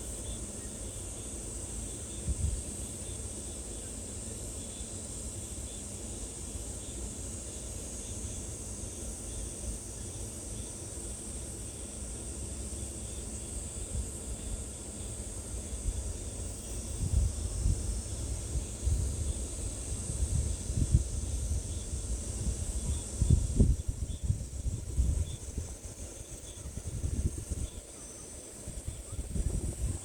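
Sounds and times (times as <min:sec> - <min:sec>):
high-pitched insect drone: 0:12.7 - 0:30.0
wind buffeting microphone: 0:17.0 - 0:27.9, 0:28.5 - 0:30.0.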